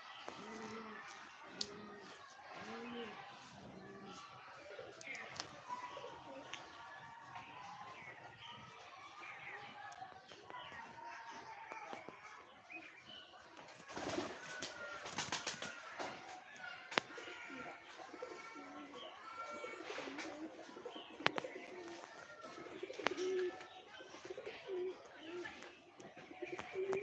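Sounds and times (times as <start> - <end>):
birds chirping: 0.0 - 27.0
bird cooing: 0.4 - 3.2, 17.1 - 23.6, 24.2 - 25.5, 26.4 - 27.0.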